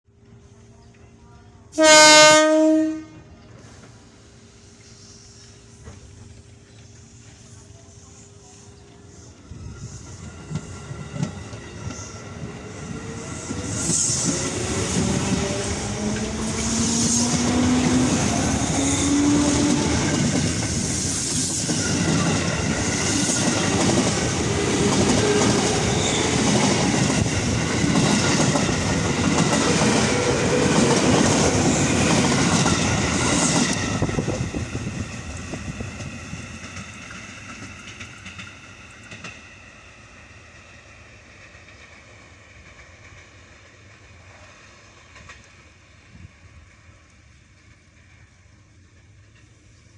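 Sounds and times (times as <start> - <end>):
train wheels clattering on rails: 9.7 - 39.6, 41.2 - 45.8.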